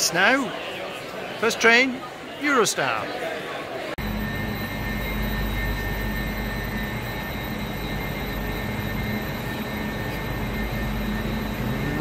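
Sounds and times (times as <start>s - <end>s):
thin high whine: 4.0s - 12.0s
train equipment humming: 4.0s - 12.0s.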